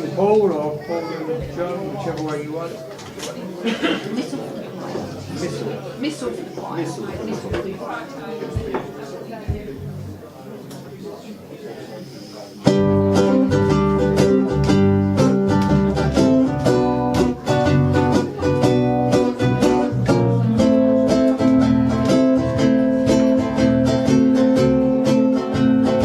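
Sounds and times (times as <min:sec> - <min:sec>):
ukuleles strumming: 0:12.6 - 0:26.0.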